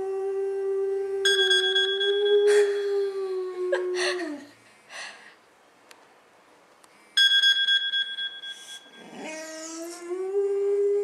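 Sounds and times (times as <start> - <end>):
phone ringtone: 7.2 - 9.1.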